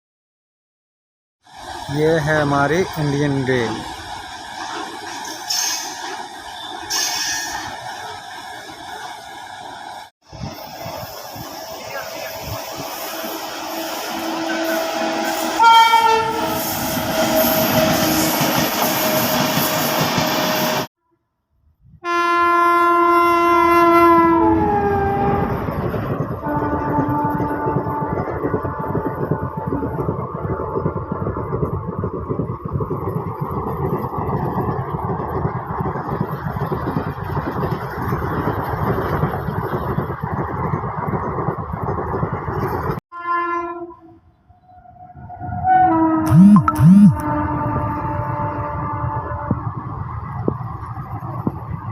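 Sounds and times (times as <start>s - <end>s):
train wheels rumbling on rails: 1.6s - 20.9s, 23.4s - 43.0s, 47.2s - 51.9s
train horn: 13.1s - 18.4s, 22.0s - 25.6s, 26.4s - 30.1s, 43.1s - 49.7s.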